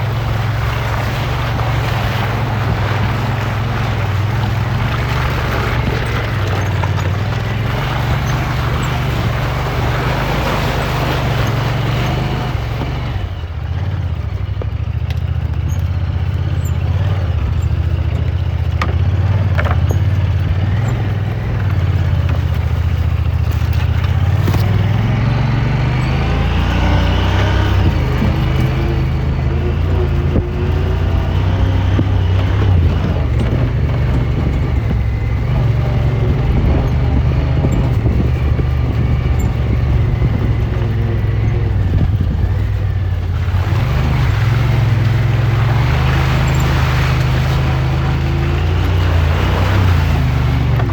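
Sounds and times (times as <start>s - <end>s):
off-road vehicle engine running: 0.0s - 50.9s
vehicle rattle: 0.0s - 50.9s
wind noise: 19.3s - 50.9s.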